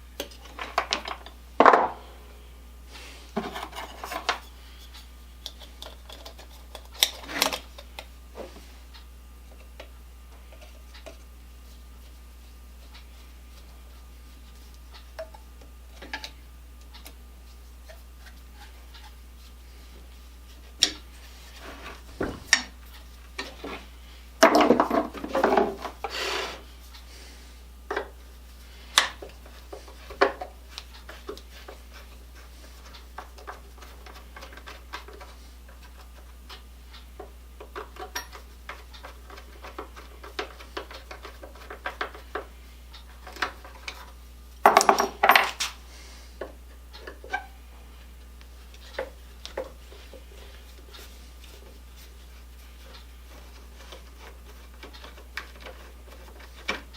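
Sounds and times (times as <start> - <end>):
metal parts clicking and clanking: 44.6 - 45.7.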